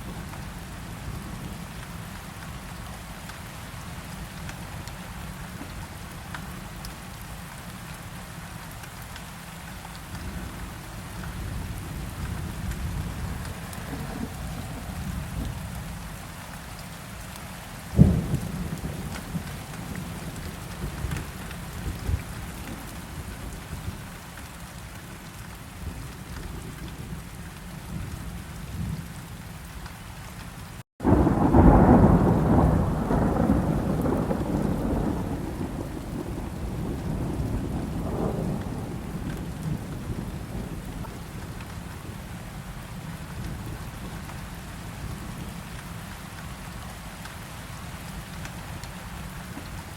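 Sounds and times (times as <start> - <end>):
steady rain: 0.0 - 49.9
rolling rumble of thunder: 10.3 - 16.1, 17.9 - 24.0, 31.0 - 44.4
thunder crack: 31.0 - 40.6.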